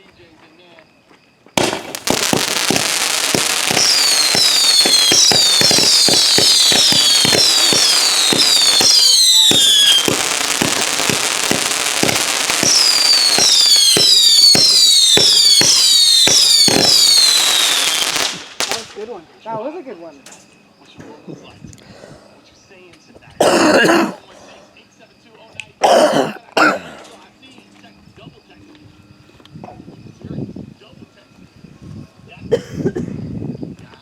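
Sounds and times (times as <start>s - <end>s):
falling firework whistles: 1.6s - 19.2s
fireworks bangs: 1.6s - 21.6s.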